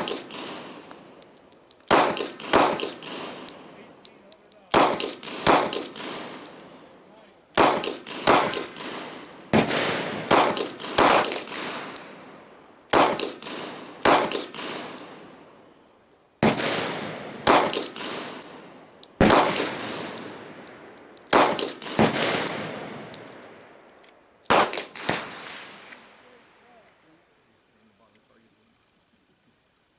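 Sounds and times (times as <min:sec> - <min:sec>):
pistol shots: 0:00.0 - 0:12.3, 0:12.9 - 0:15.3, 0:16.4 - 0:23.5, 0:24.5 - 0:25.8
brass casings pinging: 0:00.8 - 0:12.6, 0:13.7 - 0:15.6, 0:17.5 - 0:23.8.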